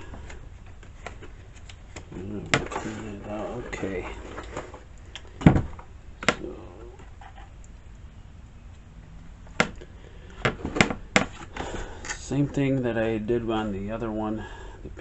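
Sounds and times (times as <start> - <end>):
thump: 5.4 - 5.8.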